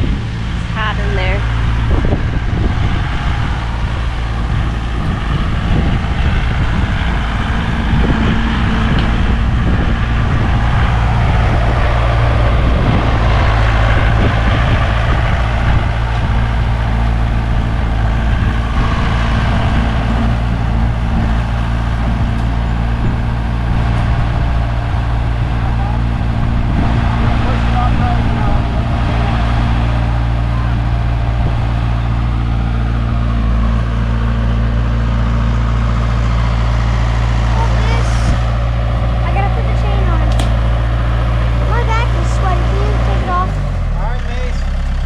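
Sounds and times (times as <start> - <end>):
tractor engine running: 0.0 - 45.0.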